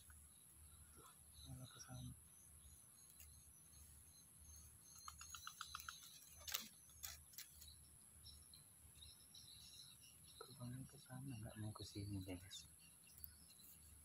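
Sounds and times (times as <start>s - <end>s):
bird chirping: 0.0s - 14.0s
sharp clicks: 5.0s - 7.6s.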